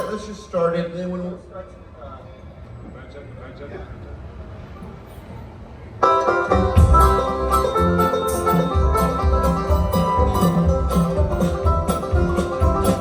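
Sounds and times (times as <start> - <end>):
banjo: 6.0 - 13.0
bluegrass band playing: 6.0 - 13.0.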